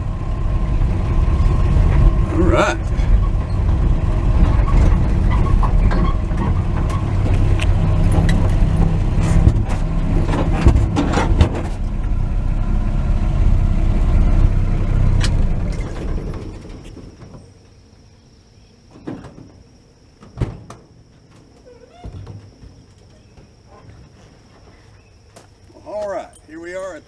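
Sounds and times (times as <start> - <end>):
truck engine running: 0.0 - 17.2.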